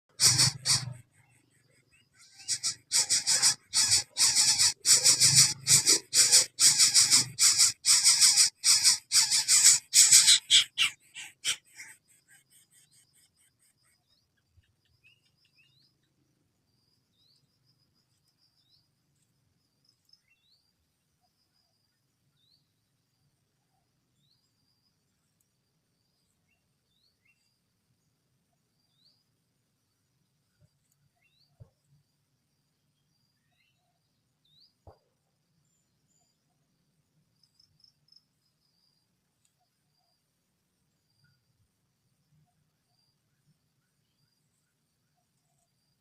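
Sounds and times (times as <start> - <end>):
chicks giving harsh rasps: 0.1 - 1.2, 2.2 - 12.0.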